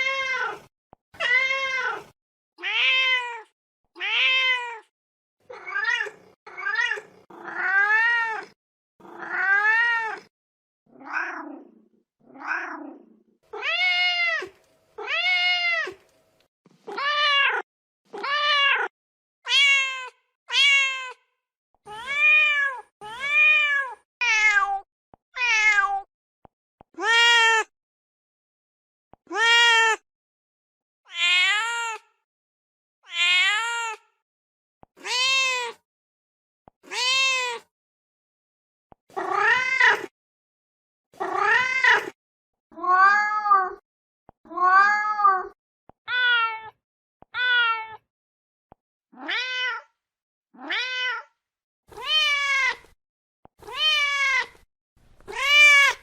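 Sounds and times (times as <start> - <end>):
cat meowing: 0.0 - 4.9, 5.5 - 10.3, 10.9 - 11.6, 13.5 - 16.0, 16.8 - 21.2, 21.9 - 26.1, 31.1 - 32.1, 33.0 - 34.1, 35.0 - 35.8, 36.8 - 37.7, 39.1 - 40.1, 41.2 - 43.8, 44.5 - 48.0, 49.2 - 49.9, 50.6 - 53.0, 53.6 - 54.6, 55.3 - 56.0.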